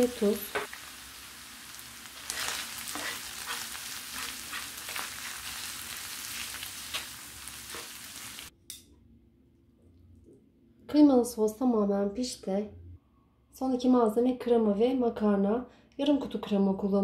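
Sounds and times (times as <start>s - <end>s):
meat sizzling in a frying pan: 0.0s - 8.5s
spoon scraping a pan: 2.2s - 8.1s.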